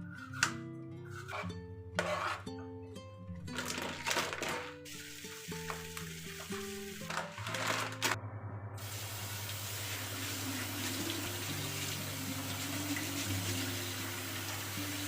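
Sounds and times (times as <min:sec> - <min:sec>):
tap water running into sink: 0:04.2 - 0:08.2, 0:08.8 - 0:15.0.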